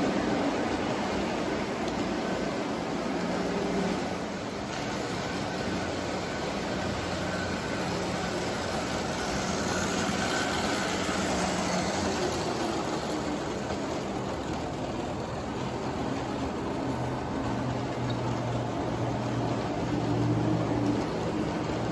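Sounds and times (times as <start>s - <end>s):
model train running on track: 0.0s - 21.9s.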